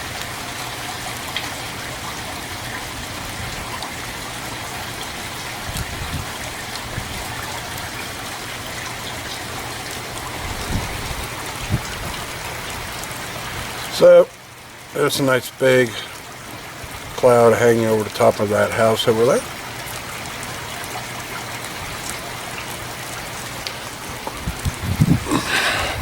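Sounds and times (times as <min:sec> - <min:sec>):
rain hissing: 0:00.0 - 0:26.0
dull low thumps: 0:24.3 - 0:26.0.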